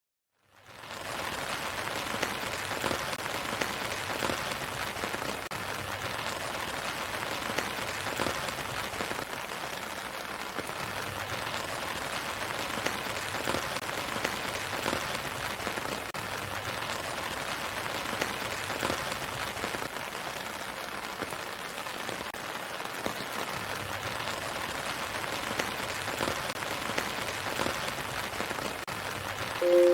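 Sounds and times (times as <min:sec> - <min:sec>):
steady rain hiss: 0:00.7 - 0:29.9.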